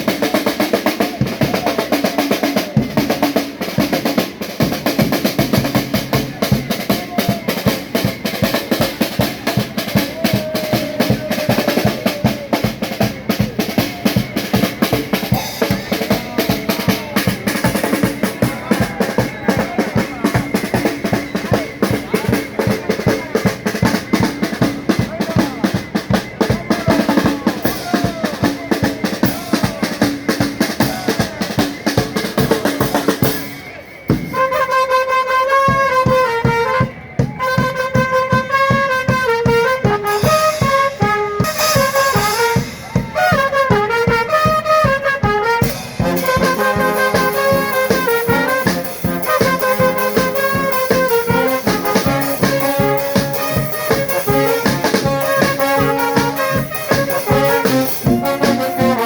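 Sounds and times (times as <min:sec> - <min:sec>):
drums and snare: 0:00.0 - 0:59.0
brass playing melody: 0:32.3 - 0:59.0.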